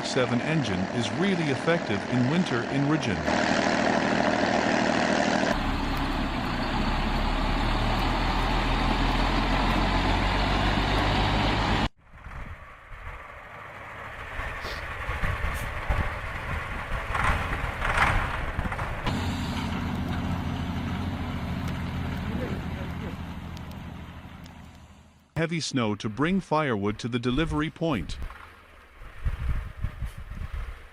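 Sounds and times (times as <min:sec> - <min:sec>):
heavy truck engine running: 0:00.0 - 0:25.4
vehicle running: 0:00.0 - 0:30.9.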